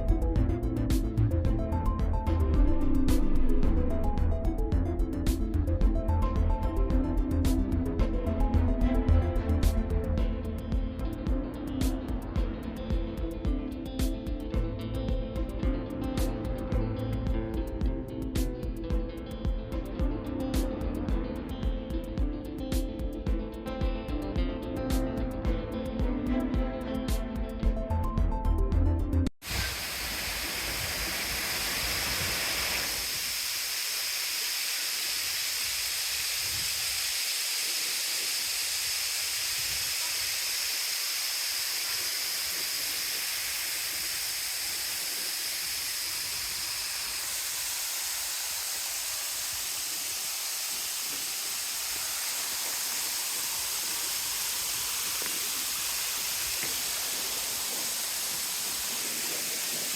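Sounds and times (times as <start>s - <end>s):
water rushing: 29.4s - 59.9s.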